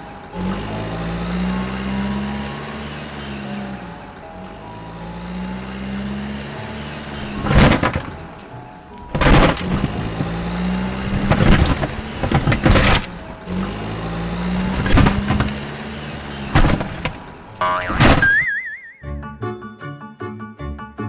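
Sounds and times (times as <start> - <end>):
sharp knocks: 16.5 - 18.6
cartoon boing: 17.6 - 19.0.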